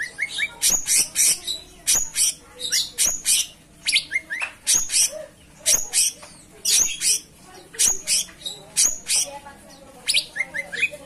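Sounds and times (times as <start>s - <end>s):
bird chirping and whistling: 0.0s - 5.1s, 5.7s - 9.3s.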